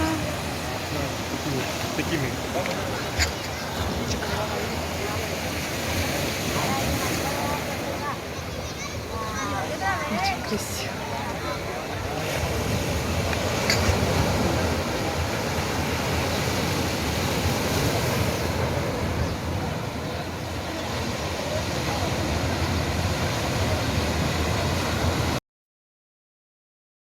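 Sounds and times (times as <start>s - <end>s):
ocean surf washing onto beach: 0.0s - 25.4s.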